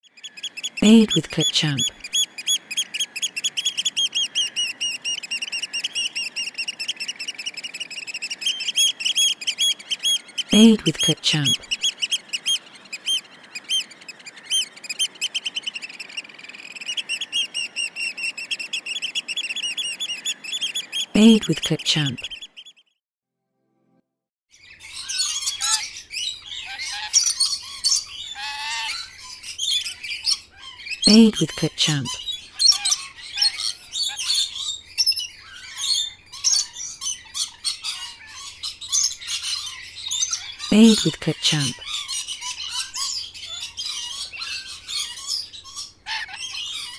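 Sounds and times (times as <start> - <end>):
bird chirping: 0.0 - 23.0, 24.6 - 46.9.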